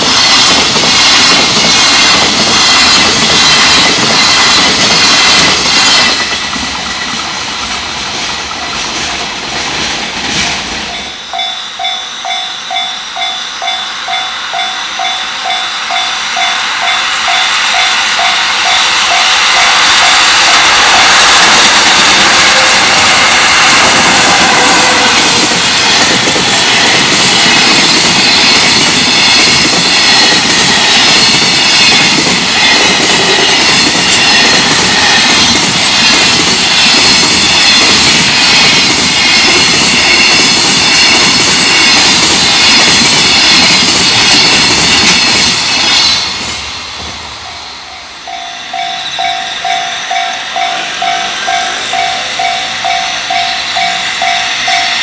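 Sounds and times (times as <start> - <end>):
freight train wheels rumbling: 0.0 - 55.0
level-crossing bell ringing: 10.8 - 20.7, 47.4 - 55.0.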